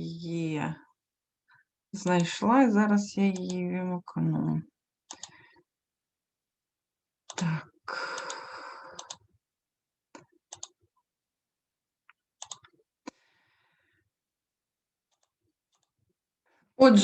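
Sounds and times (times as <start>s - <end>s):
computer mouse clicks: 3.3s - 3.6s, 5.1s - 5.4s, 8.1s - 9.3s, 10.2s - 10.8s, 12.4s - 12.8s, 15.1s - 16.0s.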